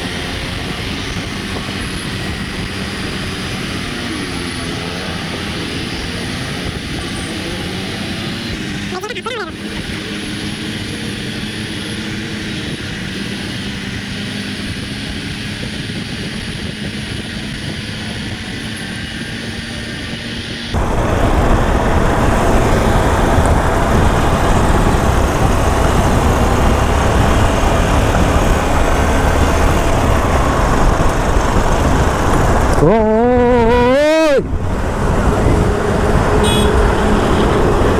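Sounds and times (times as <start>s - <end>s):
wind and road noise on motorcycle: 0.0s - 37.9s.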